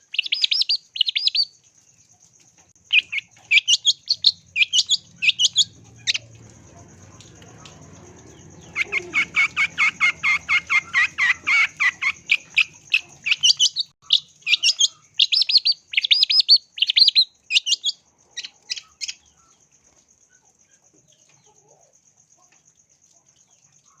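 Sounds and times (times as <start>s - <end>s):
bird chattering song: 0.0s - 1.6s, 2.8s - 19.6s.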